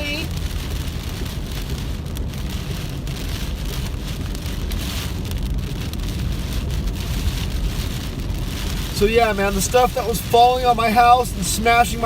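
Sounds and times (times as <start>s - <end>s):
car rumbling on wet road: 0.0s - 12.0s
heavy rain pelting a car: 0.0s - 12.0s.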